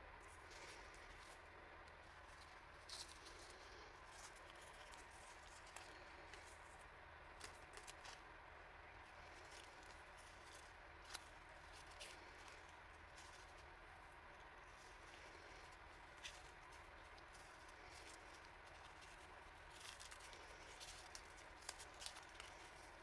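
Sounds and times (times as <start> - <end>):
low steady hiss: 0.0 - 23.0
packaging crinkling and clicking: 15.2 - 23.0.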